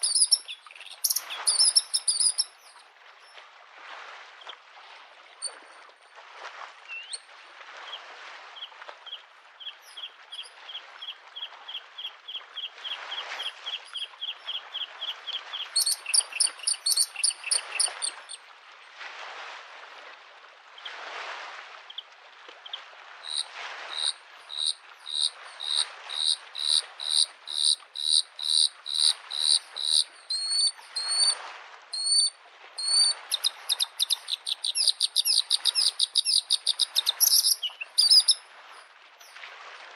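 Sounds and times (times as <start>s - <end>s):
bird singing: 0.0s - 2.8s, 11.4s - 18.3s, 32.0s - 38.4s
waves washing against shore: 0.0s - 39.9s.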